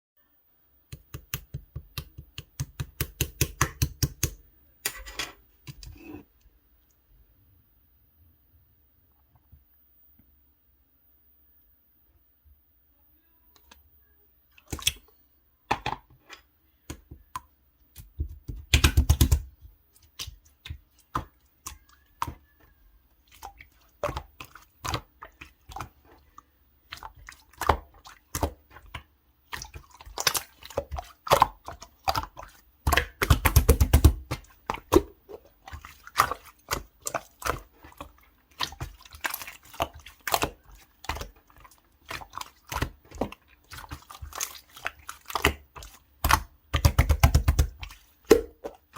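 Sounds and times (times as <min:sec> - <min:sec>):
slime squished by hand: 0:26.9 - 0:48.9.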